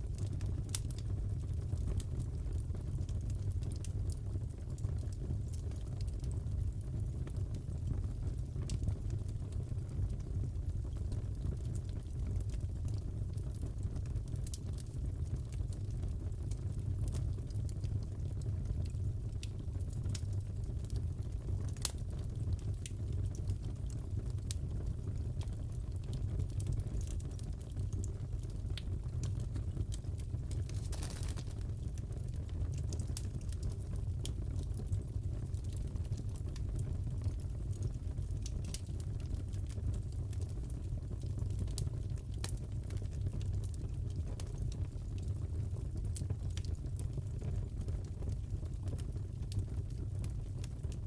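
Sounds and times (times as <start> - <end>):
fireplace fire crackling: 0.0 - 51.0
fireplace crackling: 18.2 - 24.6, 25.2 - 41.8.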